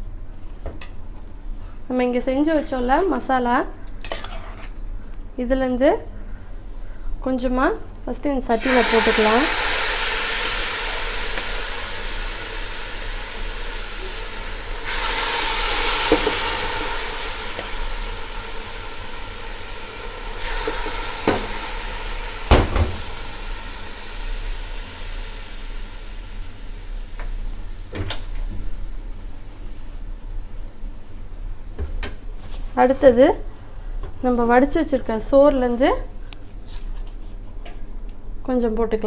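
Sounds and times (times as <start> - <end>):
food sizzling in a pot: 8.5 - 30.7.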